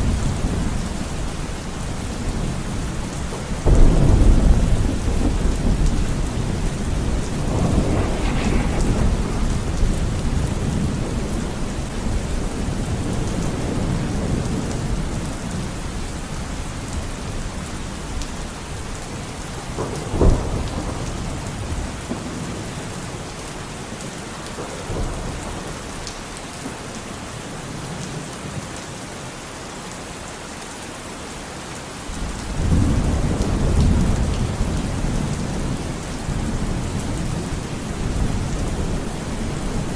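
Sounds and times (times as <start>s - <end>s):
rain falling: 0.0s - 39.9s
thunder: 1.8s - 15.7s, 18.2s - 26.8s, 32.2s - 39.9s.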